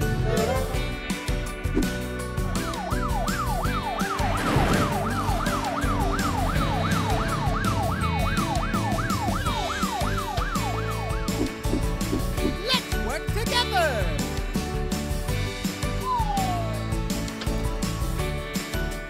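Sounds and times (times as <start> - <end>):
background music: 0.0 - 19.0
police siren yelping: 2.6 - 12.7, 16.0 - 16.9.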